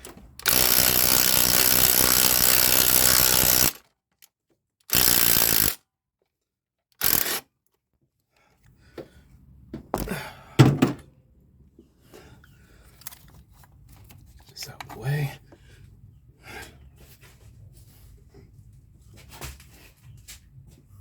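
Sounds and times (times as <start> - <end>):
impact wrench running: 0.4 - 3.9, 4.9 - 5.8, 7.0 - 7.4
metal clunks: 9.8 - 11.1.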